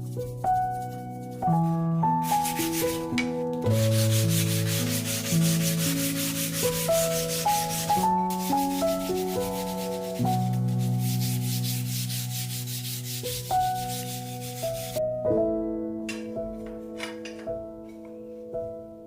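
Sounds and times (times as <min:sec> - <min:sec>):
background music with sustained notes: 0:00.0 - 0:19.0
wood being sanded: 0:02.2 - 0:03.1, 0:03.7 - 0:15.0.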